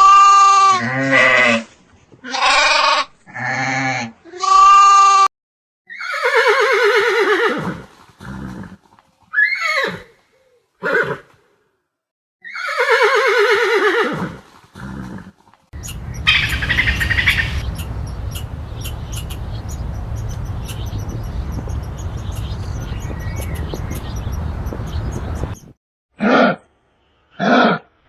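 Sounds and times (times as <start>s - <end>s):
horse whinnying: 5.9s - 10.1s, 10.8s - 11.3s, 12.4s - 15.3s
birds chirping: 15.8s - 25.8s.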